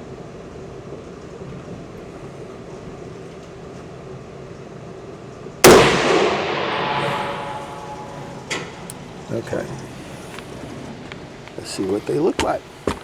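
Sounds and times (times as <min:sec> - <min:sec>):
rifle shot echoing: 0:05.6 - 0:08.9.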